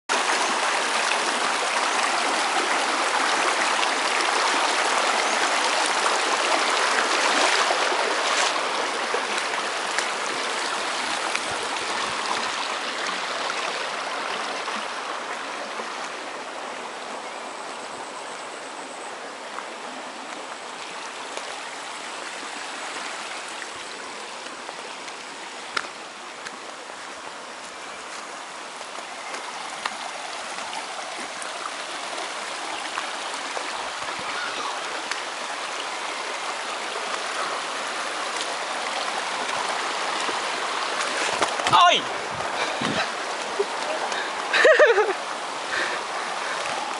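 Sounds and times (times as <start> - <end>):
waterfall rushing and splashing: 0.1 - 46.9.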